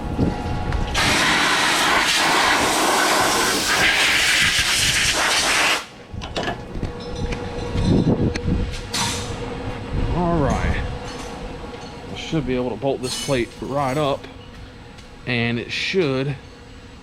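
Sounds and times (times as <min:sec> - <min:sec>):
compressed air blow gun hissing: 0:01.0 - 0:05.9.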